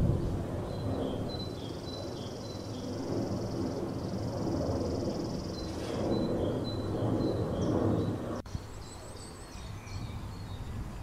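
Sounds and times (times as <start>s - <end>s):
small birds chirping and trilling: 0.6s - 11.0s.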